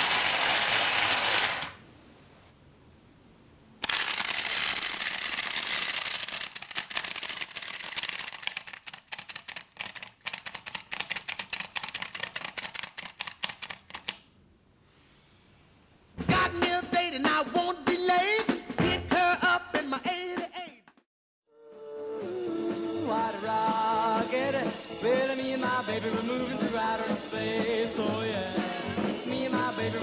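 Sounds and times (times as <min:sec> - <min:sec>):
clockwork toy rattling whir: 0:00.0 - 0:01.8, 0:03.8 - 0:14.0
rapid clockwork clicks: 0:03.8 - 0:14.2.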